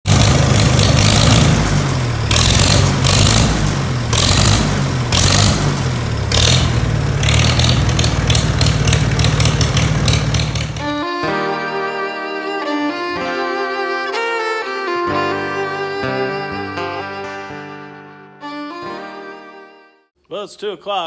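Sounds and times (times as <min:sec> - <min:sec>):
tractor engine revving: 0:00.0 - 0:11.3.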